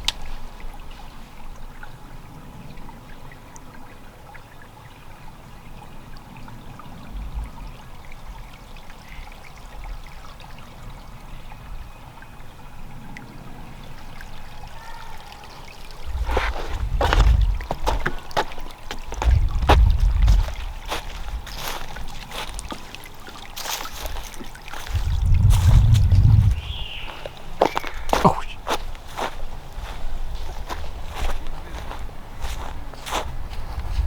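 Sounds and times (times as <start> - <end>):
creek water trickling: 0.0 - 34.0
low rumbles on microphone: 16.0 - 22.8, 24.2 - 29.0, 29.8 - 34.0.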